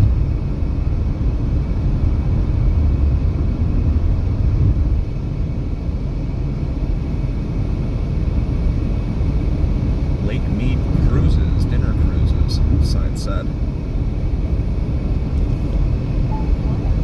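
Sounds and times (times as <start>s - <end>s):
tyre and road noise: 0.0s - 5.2s
car engine drone: 0.0s - 17.0s.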